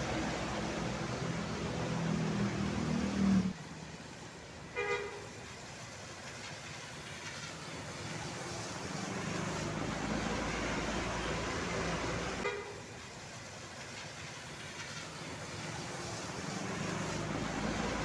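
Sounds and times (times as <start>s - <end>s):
heavy vehicles passing: 0.0s - 5.6s, 7.6s - 13.1s, 14.1s - 18.0s.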